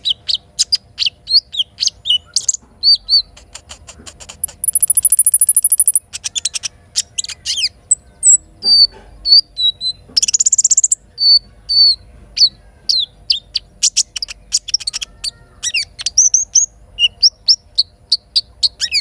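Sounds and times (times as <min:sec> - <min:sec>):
rapid high bird trill: 0:00.0 - 0:19.0
songbirds chirping and whistling: 0:00.0 - 0:19.0.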